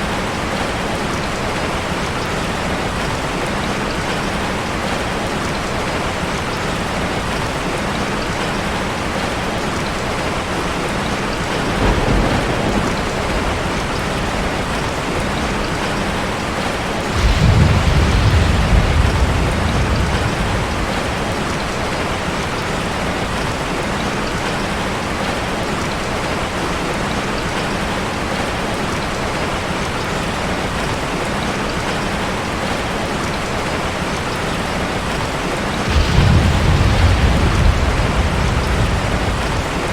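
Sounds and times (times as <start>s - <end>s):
rushing water: 0.0s - 39.9s
deep low rumble: 35.9s - 39.9s.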